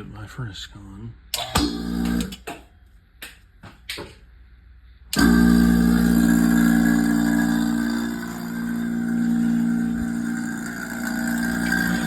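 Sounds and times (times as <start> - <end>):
vacuum pump humming: 1.4 - 2.5, 5.1 - 12.0.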